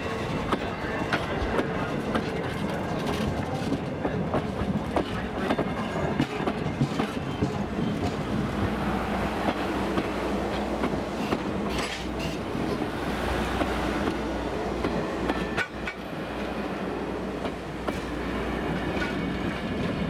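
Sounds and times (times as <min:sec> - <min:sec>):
train wheels rumbling on rails: 0:00.0 - 0:20.0
wheels clacking over rail joints: 0:09.4 - 0:16.2.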